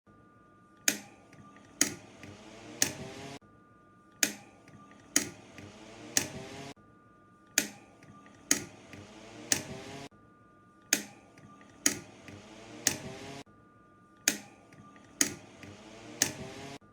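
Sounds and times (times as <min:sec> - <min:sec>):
electric fan airflow and hum: 0:00.7 - 0:03.4, 0:04.2 - 0:06.8, 0:07.4 - 0:10.1, 0:10.8 - 0:13.5, 0:14.2 - 0:16.9
button clicks: 0:00.9 - 0:03.4, 0:04.2 - 0:06.6, 0:07.6 - 0:10.1, 0:11.0 - 0:13.4, 0:14.3 - 0:16.8.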